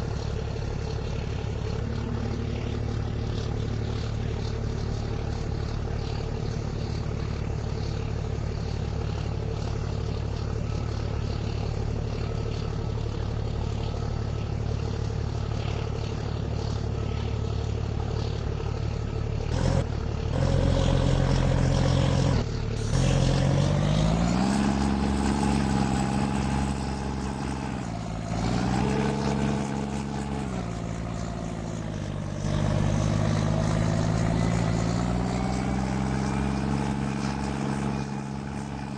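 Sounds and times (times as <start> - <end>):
truck engine revving: 19.4 - 38.9.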